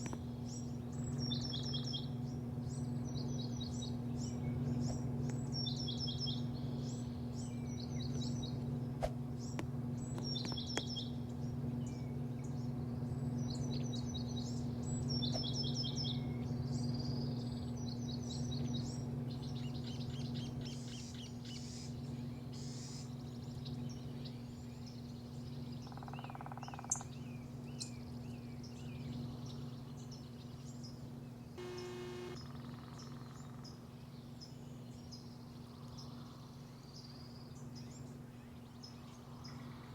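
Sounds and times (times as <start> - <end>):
small birds singing: 0.0 - 8.6, 9.4 - 32.4
steady low hum: 31.6 - 32.4.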